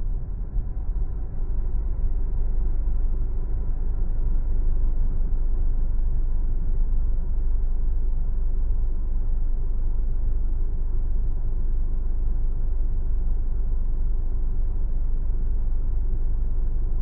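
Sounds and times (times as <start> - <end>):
car road and tyre noise: 0.0 - 7.2.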